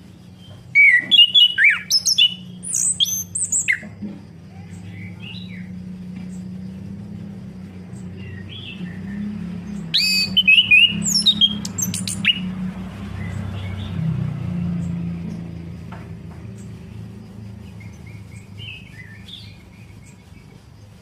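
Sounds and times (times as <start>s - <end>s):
steady low hum: 0.0s - 13.9s
thrush singing: 7.0s - 15.1s.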